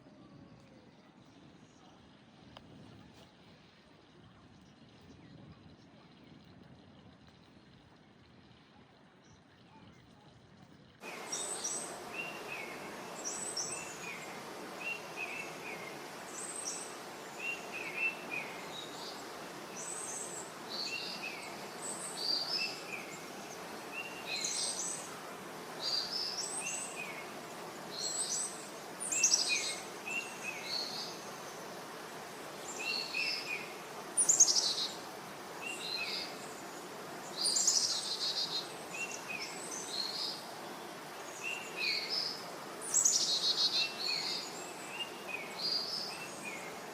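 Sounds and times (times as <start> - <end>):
background hiss: 11.0 - 46.9
wild birds chirping: 11.0 - 46.9.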